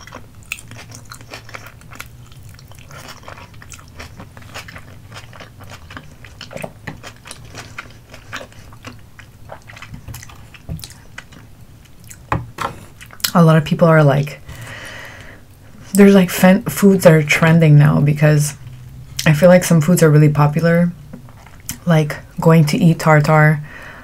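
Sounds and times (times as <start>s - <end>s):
chewing with wet mouth clicks: 0.0s - 12.3s.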